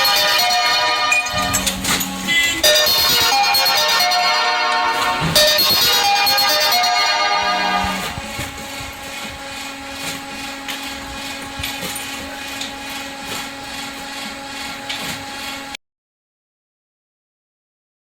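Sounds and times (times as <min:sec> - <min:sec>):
background music: 0:00.0 - 0:09.8
machine humming: 0:00.0 - 0:15.8
metal clanks and rattles: 0:01.1 - 0:03.3.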